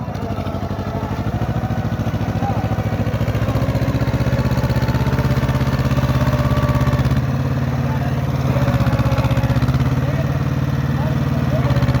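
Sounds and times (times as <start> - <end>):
tractor engine chugging: 0.0 - 12.0.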